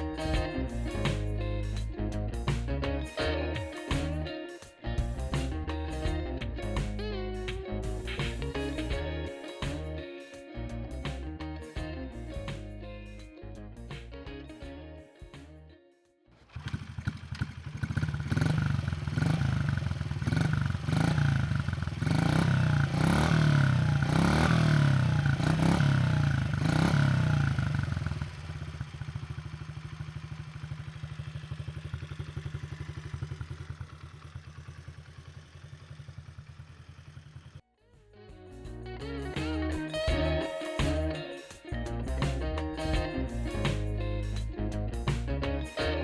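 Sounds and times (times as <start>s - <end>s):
small motorcycle engine revving: 16.3s - 37.6s.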